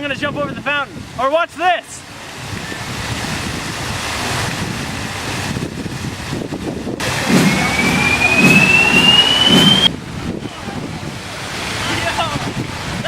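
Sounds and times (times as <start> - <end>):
wind buffeting microphone: 0.0 - 1.2, 2.4 - 11.4, 12.0 - 13.0
fountain water rushing: 0.0 - 13.0
low pulse: 7.0 - 10.0
thin rising whistle-like tone: 7.3 - 9.9.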